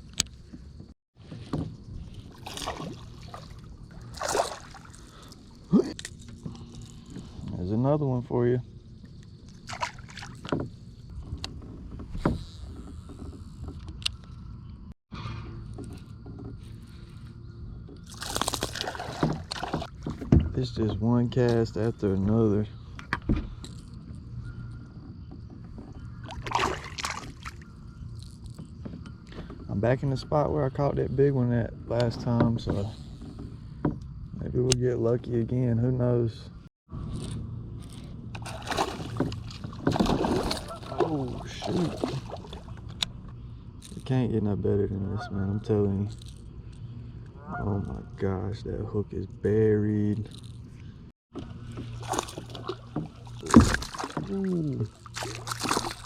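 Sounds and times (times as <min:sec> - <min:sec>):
water splashing against kayak: 0:01.2 - 0:05.6, 0:09.6 - 0:10.7, 0:18.0 - 0:20.5, 0:26.0 - 0:27.7, 0:38.4 - 0:43.0, 0:51.3 - 0:56.0
water splash swish: 0:02.3 - 0:05.0, 0:38.4 - 0:42.7, 0:55.1 - 0:56.0
knocks against hull: 0:38.4 - 0:42.5, 0:51.3 - 0:54.3.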